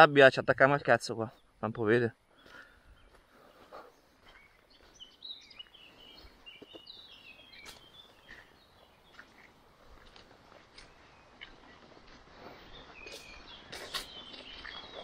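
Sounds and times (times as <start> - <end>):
faint birdsong: 0.0 - 15.0.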